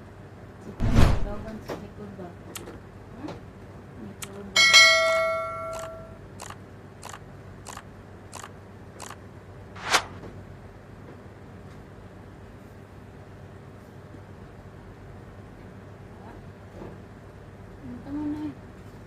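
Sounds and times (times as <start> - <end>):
sharp click: 5.7 - 7.8
light evenly spaced ticks: 5.7 - 9.2.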